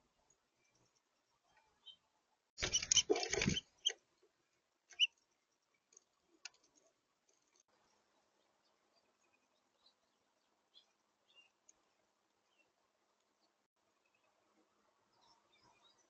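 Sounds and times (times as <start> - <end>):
bird scrabbling at feeder: 2.6 - 4.0.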